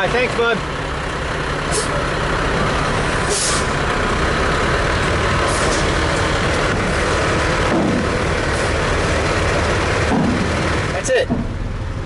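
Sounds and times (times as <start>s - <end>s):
heavy diesel engines running: 0.0s - 12.0s
air brake hisses: 1.7s - 2.0s, 3.3s - 3.7s.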